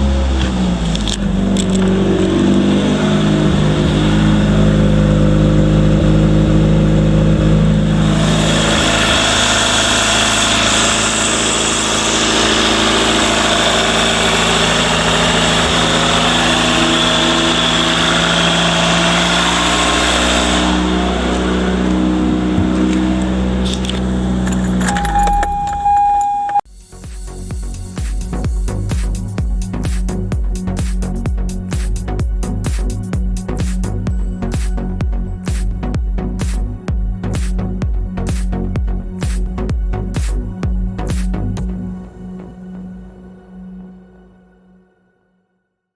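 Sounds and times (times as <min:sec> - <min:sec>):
car engine running: 0:00.0 - 0:25.6, 0:27.3 - 0:41.8.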